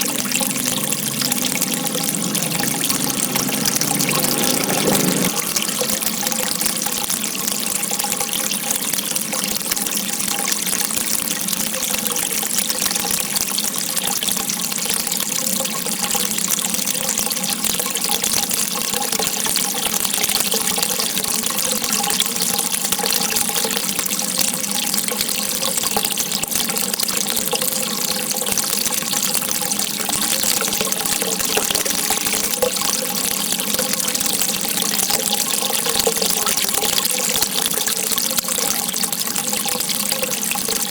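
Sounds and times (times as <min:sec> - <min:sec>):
water rushing: 0:00.0 - 0:08.6, 0:27.1 - 0:40.9.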